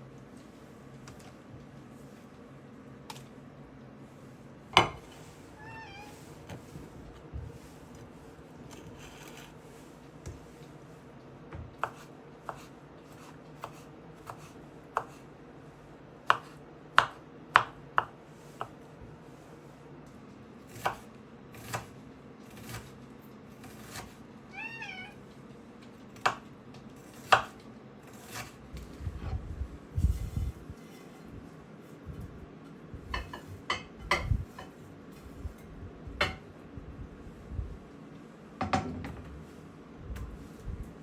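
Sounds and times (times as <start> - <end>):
cat meowing: 5.6 - 6.2, 24.5 - 25.2.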